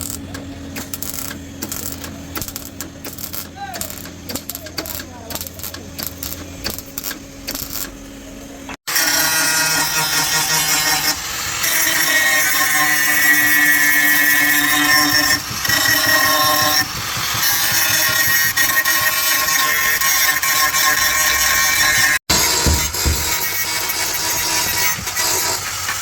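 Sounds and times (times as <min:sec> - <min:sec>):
power tool whining on sheet metal: 0:00.0 - 0:26.0.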